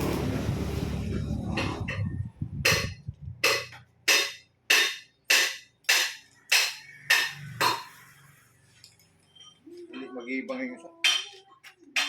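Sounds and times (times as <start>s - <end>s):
sharp ringing knocks: 2.7s - 8.0s.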